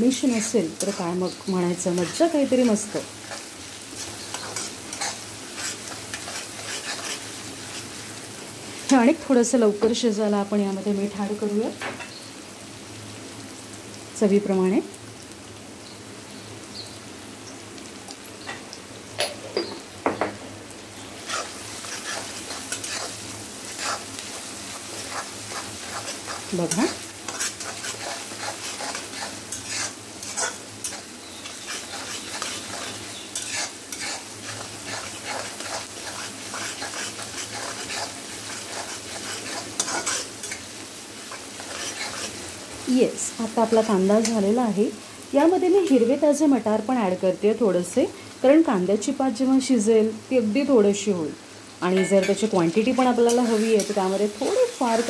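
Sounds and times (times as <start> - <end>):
vegetables sizzling in hot oil: 0.0 - 55.0
metal spatula scraping pan: 1.9 - 7.8, 21.2 - 24.1, 24.8 - 40.7, 41.3 - 42.4, 52.0 - 54.8.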